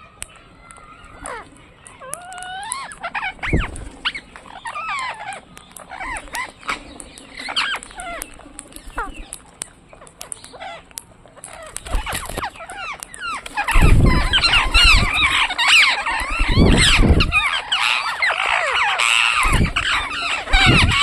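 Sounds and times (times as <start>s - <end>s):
parrot chattering: 10.0s - 21.0s.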